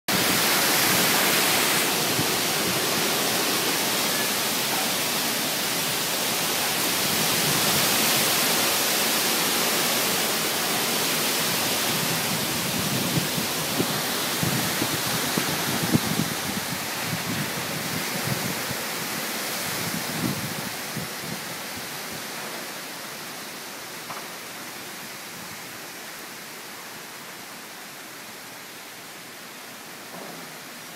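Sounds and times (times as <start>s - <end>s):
storm wind rushing: 11.4s - 21.9s
wind buffeting microphone: 11.4s - 22.2s.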